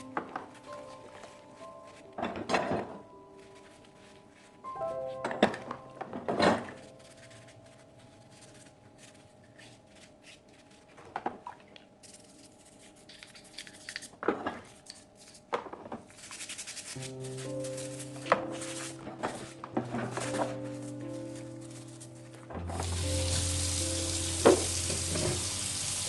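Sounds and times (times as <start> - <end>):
soft background music: 0.0 - 11.0, 16.1 - 26.0
scrubbing: 16.1 - 26.0.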